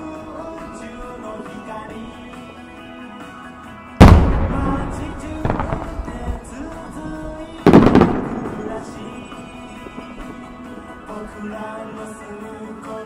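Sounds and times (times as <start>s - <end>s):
music: 0.0s - 13.0s
firework shells bursting: 4.0s - 11.7s.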